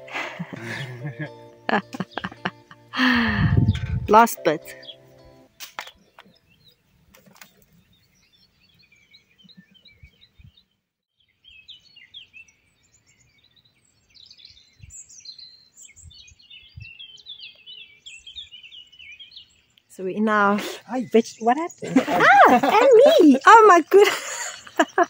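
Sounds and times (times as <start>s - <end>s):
small birds chirping: 0.0s - 25.0s
soft low thumps: 3.2s - 4.3s.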